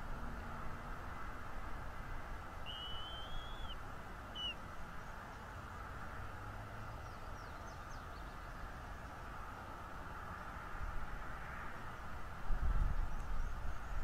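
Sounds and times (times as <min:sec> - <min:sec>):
background hiss: 0:00.0 - 0:10.4
high whistled bird call: 0:02.6 - 0:04.6
faint quick chirps: 0:02.7 - 0:03.8, 0:04.4 - 0:04.6.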